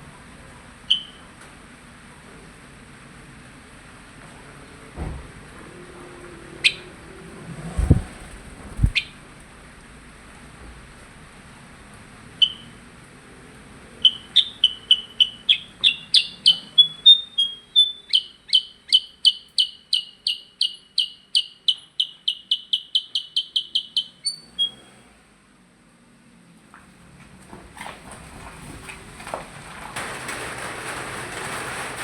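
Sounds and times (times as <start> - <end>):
songbird chirping: 7.8 - 9.2, 14.0 - 24.9.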